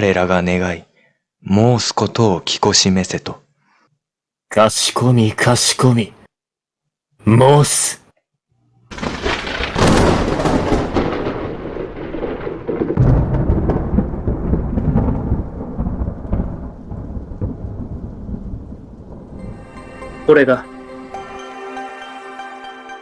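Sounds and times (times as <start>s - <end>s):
rolling thunder rumble: 8.9s - 21.2s
thunder crack: 8.9s - 21.4s.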